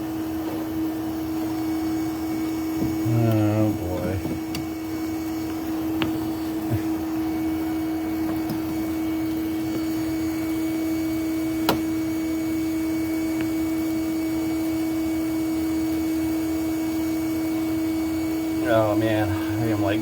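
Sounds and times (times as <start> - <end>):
vacuum cleaner humming: 0.0 - 20.0.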